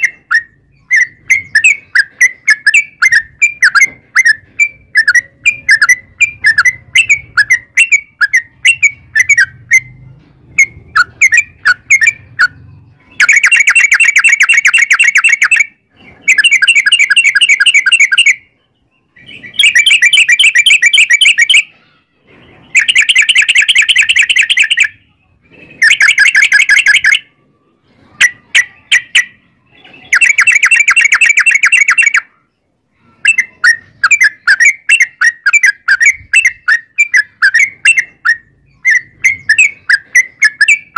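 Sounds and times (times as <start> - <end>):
bird chirps: 0.0 - 40.9
bird trilled song: 0.0 - 40.9.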